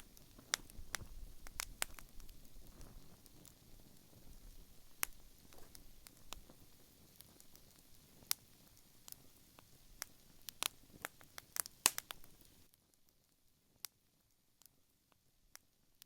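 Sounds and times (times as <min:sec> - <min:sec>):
burning wood popping: 0:00.0 - 0:16.0
soft background hiss: 0:00.0 - 0:16.0
wood fire crackling: 0:00.0 - 0:16.0.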